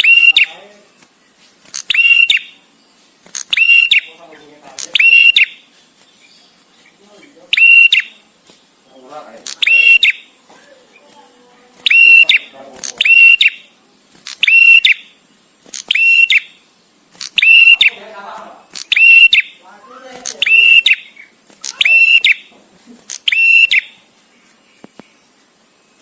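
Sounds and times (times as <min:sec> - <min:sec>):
bird calling shrill notes: 0:00.0 - 0:01.0, 0:01.6 - 0:10.4, 0:11.8 - 0:19.7, 0:20.3 - 0:22.5, 0:23.1 - 0:24.1.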